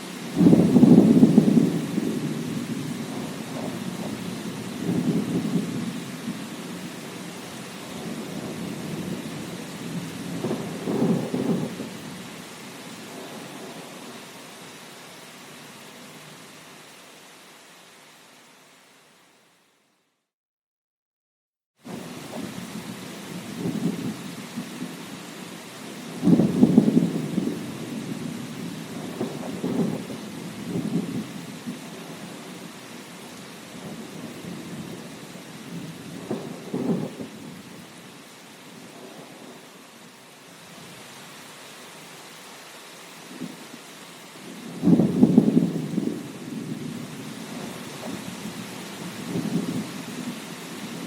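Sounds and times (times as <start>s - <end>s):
steady rain: 0.0s - 20.0s, 21.8s - 51.0s
rolling thunder: 0.3s - 12.3s, 21.9s - 24.9s, 26.0s - 32.7s, 33.7s - 37.8s, 44.4s - 51.0s.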